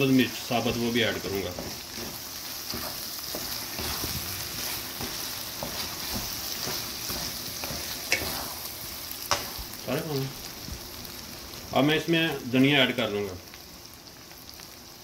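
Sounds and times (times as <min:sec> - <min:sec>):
food sizzling in oil: 0:00.0 - 0:15.0
wooden spatula scraping a pan: 0:00.3 - 0:09.7.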